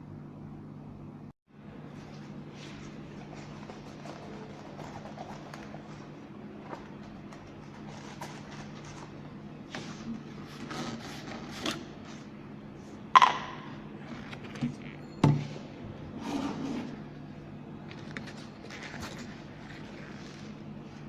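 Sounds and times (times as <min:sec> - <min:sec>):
steady low hum: 0:00.0 - 0:21.0
objects knocking and scraping: 0:13.2 - 0:13.6.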